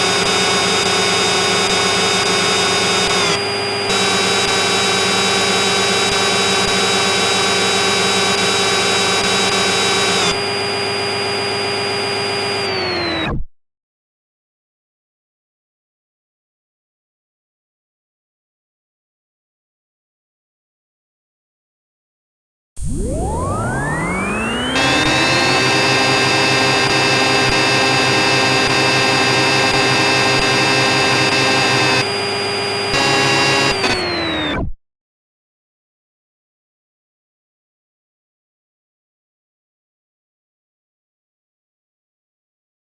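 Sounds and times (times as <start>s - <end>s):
motor-driven machine whining: 0.0s - 13.3s, 22.8s - 34.7s.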